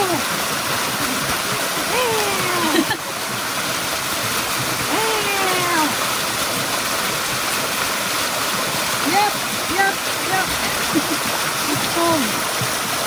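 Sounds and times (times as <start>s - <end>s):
waterfall rushing: 0.0s - 13.0s
person's drawn-out falling vocal sound: 4.9s - 5.9s.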